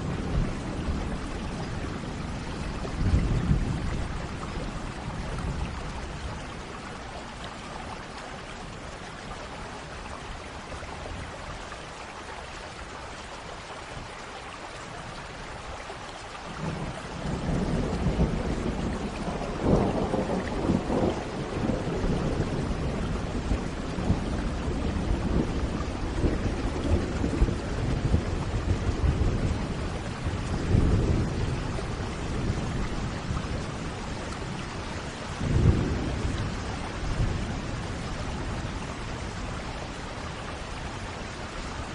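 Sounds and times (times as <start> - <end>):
rolling thunder: 0.0 - 6.7, 16.6 - 40.2
steady rain falling: 0.0 - 41.9.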